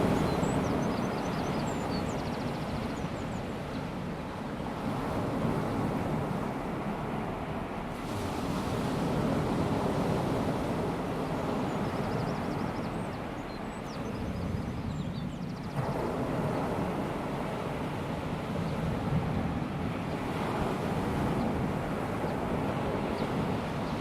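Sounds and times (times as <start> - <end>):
sea washing onto a beach: 0.0 - 12.1.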